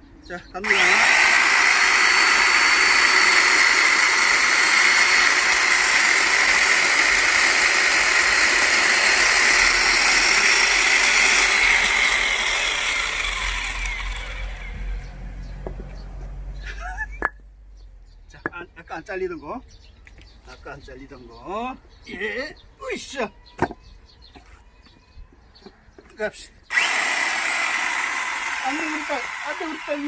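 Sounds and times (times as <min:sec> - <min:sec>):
electric chainsaw cutting wood: 0:00.6 - 0:15.9, 0:26.7 - 0:30.0.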